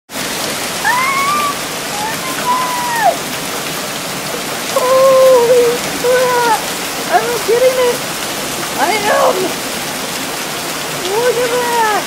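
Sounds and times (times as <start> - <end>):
heavy rain and hail: 0.1 - 12.0
person speaking: 4.8 - 8.0, 8.8 - 9.6, 11.0 - 12.0.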